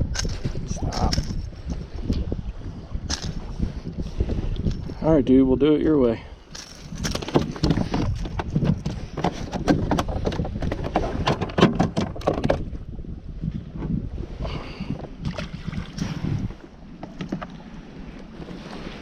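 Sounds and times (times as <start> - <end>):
knocks and clicks on a kayak: 6.6 - 12.8, 17.0 - 17.6.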